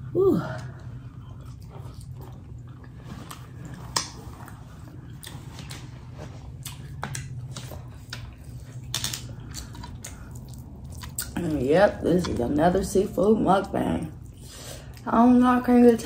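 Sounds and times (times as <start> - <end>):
person chewing: 0.0 - 11.6.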